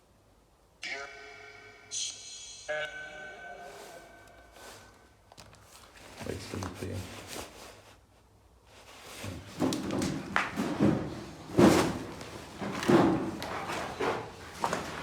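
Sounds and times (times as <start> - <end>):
thuds and knocks: 9.2 - 15.0.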